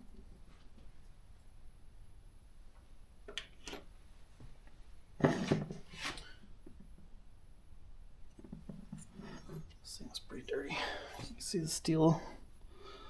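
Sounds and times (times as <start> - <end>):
tools clattering on workbench: 5.2 - 5.8.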